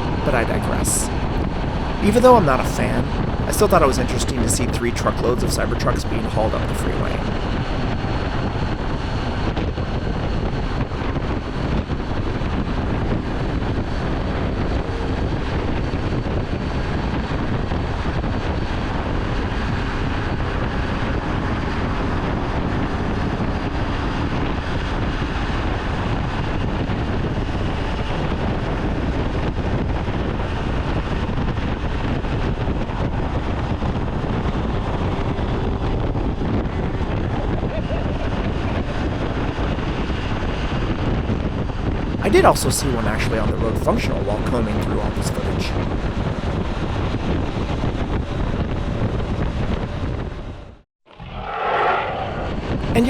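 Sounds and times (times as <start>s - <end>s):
wind rushing over microphone: 51.2s - 53.0s.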